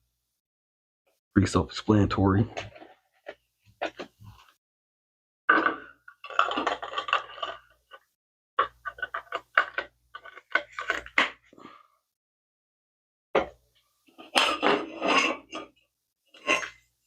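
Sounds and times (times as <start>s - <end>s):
plastic parts clicking and rattling: 5.9s - 11.6s.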